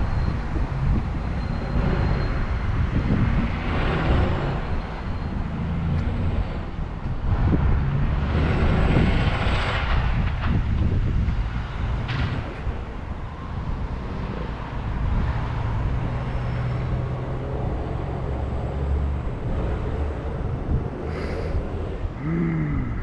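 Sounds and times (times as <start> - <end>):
vehicles passing: 0.0 - 23.0
wind rumbling on microphone: 0.0 - 23.0.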